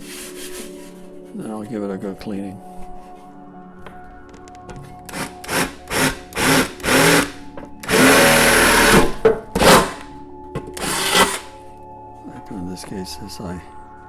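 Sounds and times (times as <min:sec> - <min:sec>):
power drill bursts: 0:05.1 - 0:10.1, 0:10.8 - 0:11.6.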